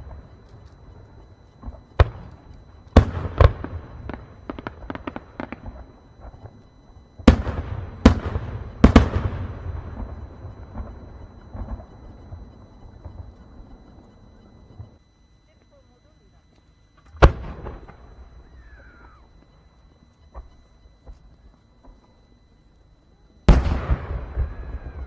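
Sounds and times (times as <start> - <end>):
fireworks crackling: 0.0 - 15.0, 23.5 - 25.0
fireworks bangs with rumbling echo: 1.6 - 6.6, 7.2 - 13.7, 17.2 - 18.1, 23.5 - 25.0.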